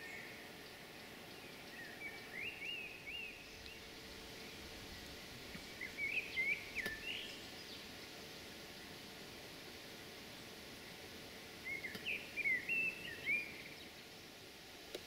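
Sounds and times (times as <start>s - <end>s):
songbird chirping: 0.0s - 9.0s, 11.6s - 14.0s
faint background hiss: 0.0s - 15.0s.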